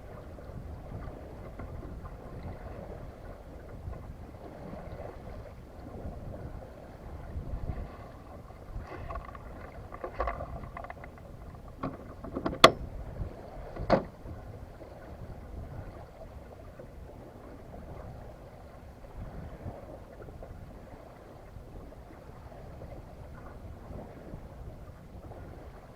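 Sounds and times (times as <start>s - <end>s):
wind and water rumble: 0.0s - 25.9s
light clattering knocks: 9.0s - 12.9s.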